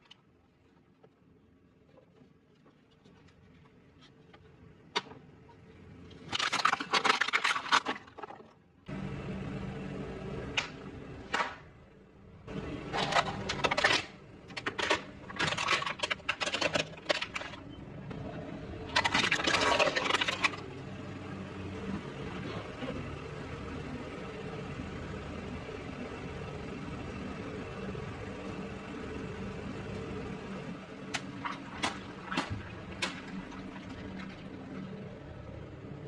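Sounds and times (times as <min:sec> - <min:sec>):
steady low hum: 0:08.9 - 0:36.0.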